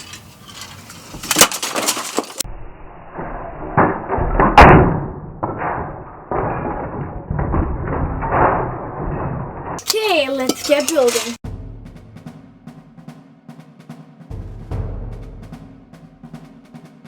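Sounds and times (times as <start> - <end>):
plastic bricks cracking and clattering: 0.5 - 2.4.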